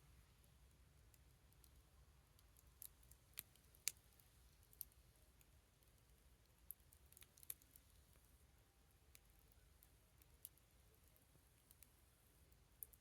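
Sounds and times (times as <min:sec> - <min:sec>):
wood fire crackling: 0:02.4 - 0:08.3.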